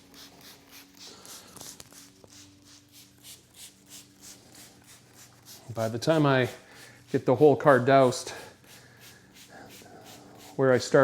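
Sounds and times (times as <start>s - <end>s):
spray bottle spritzing: 0.0s - 10.9s.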